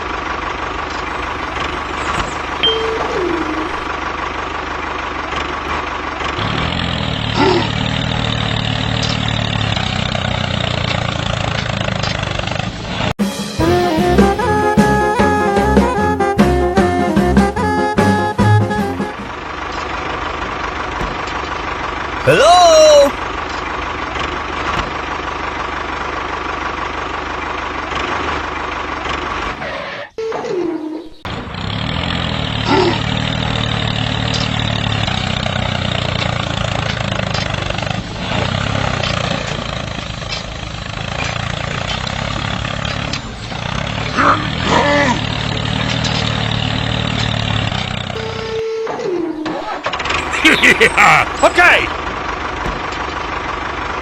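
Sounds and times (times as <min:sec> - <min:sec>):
tractor engine idling: 0:00.0 - 0:29.7, 0:31.2 - 0:54.0.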